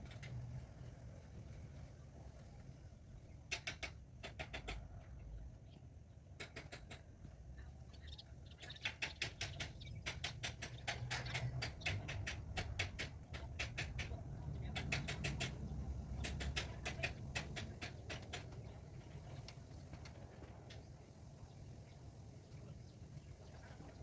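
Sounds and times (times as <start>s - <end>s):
bird dry clicking: 6.4s - 7.1s, 8.6s - 14.2s, 16.2s - 18.6s.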